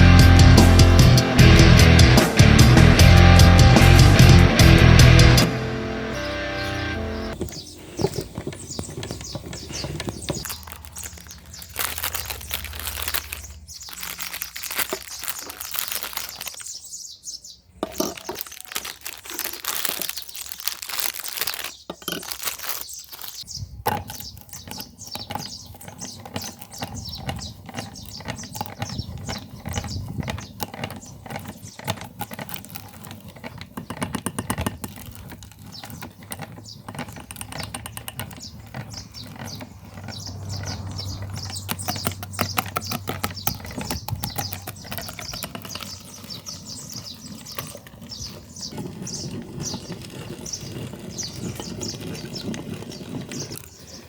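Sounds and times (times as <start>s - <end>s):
crackling and clicking of grinding: 0.0s - 54.0s.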